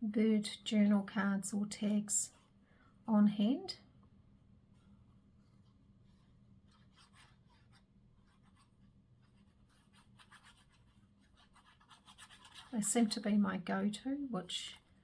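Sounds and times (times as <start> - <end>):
paper rustling and scratching: 5.4 - 13.2.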